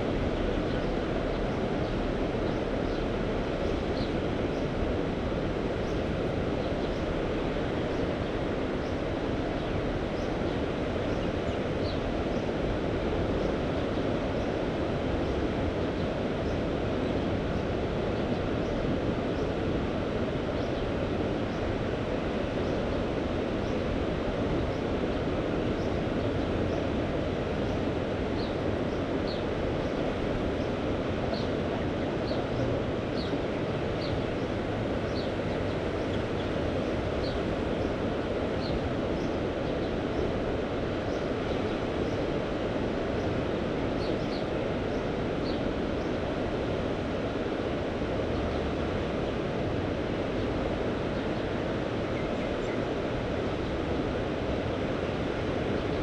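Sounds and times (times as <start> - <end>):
sea at the shore: 0.0 - 56.0
wind: 0.0 - 56.0.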